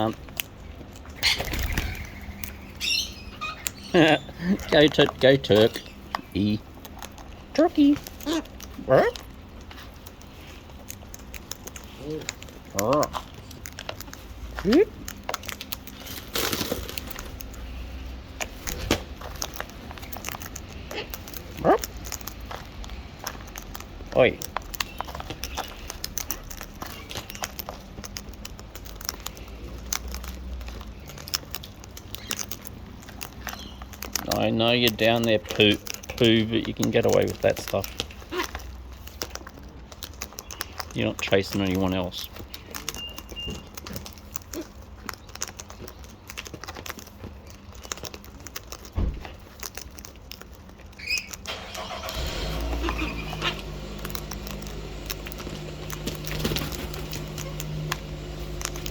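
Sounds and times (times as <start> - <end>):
beaks clicking on husks: 0.0 - 58.9
parrots cracking seed: 0.0 - 58.9
thump: 49.0 - 49.3.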